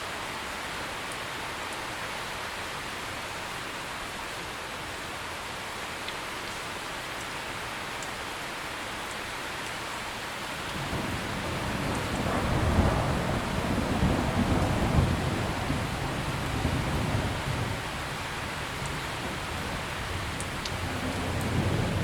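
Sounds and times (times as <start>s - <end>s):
heavy rain: 0.0s - 22.0s
thunder rumbling: 10.7s - 22.0s.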